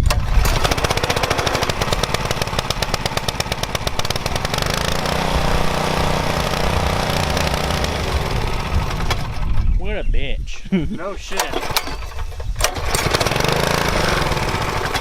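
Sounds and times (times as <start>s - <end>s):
pressure washer engine running: 0.1s - 9.3s, 12.8s - 15.0s.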